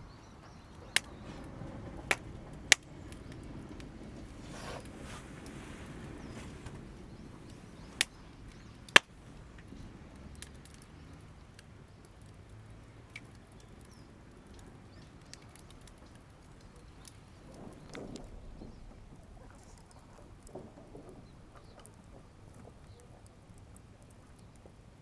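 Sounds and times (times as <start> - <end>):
campfire crackling: 0.2 - 25.0
loud firewood pops: 0.9 - 8.2, 8.9 - 9.2.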